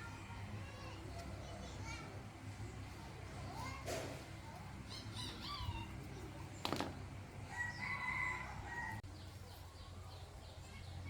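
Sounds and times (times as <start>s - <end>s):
rooster crowing: 7.5s - 9.0s.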